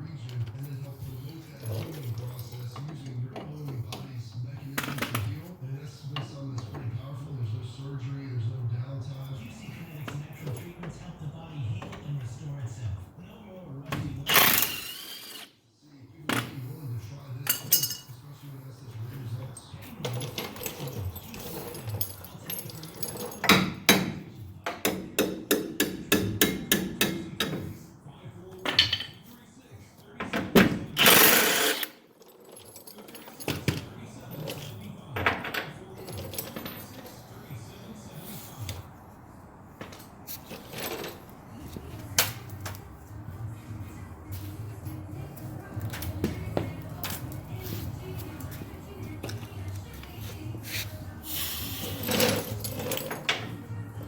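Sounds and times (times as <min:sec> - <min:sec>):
metal tools clanking: 0:00.2 - 0:05.4, 0:17.4 - 0:18.3, 0:19.3 - 0:24.2, 0:28.6 - 0:29.4, 0:30.5 - 0:38.8, 0:39.8 - 0:42.8, 0:45.8 - 0:53.8.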